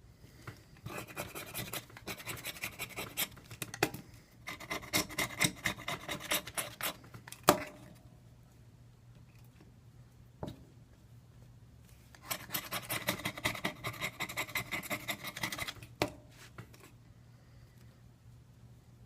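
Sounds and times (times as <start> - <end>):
scraper scratching phone frame: 0.9 - 3.4, 4.5 - 7.0, 12.2 - 15.9.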